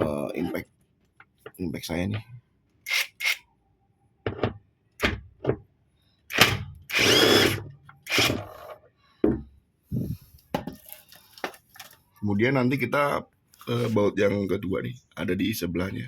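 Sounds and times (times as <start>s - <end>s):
impact wrench running: 6.3s - 8.5s.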